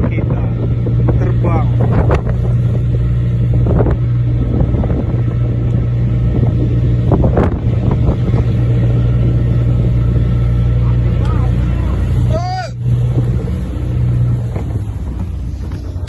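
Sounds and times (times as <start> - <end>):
boat engine droning: 0.0 - 16.0
wind buffeting microphone: 0.0 - 16.0.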